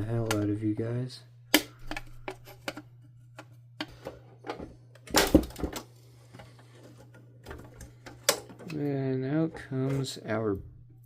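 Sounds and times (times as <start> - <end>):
plastic parts clicking and rattling: 1.6 - 8.8.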